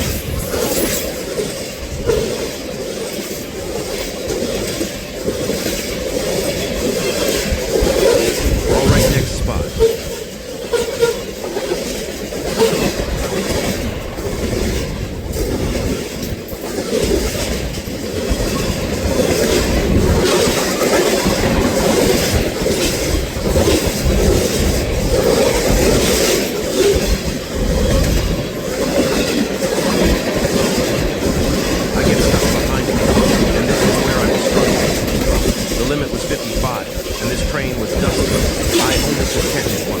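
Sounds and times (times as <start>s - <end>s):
train low rumble: 30.1s - 40.0s.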